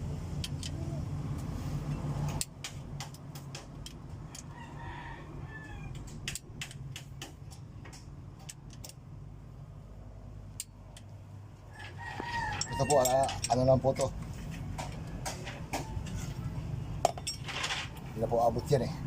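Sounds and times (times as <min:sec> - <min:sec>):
rooster crowing: 0:04.3 - 0:06.2, 0:11.7 - 0:13.4
wrench clicking on bolts: 0:05.9 - 0:09.0, 0:12.5 - 0:14.1.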